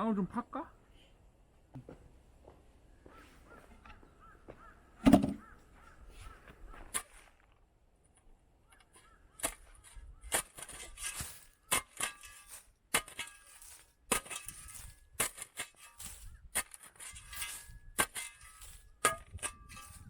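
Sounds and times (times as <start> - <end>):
shovel digging into soil: 6.9 - 7.4, 8.9 - 20.0.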